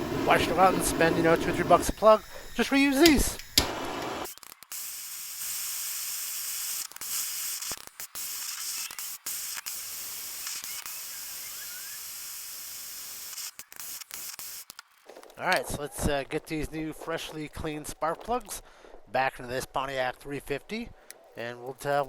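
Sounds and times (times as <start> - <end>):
torch flame hissing: 0.0 - 14.7.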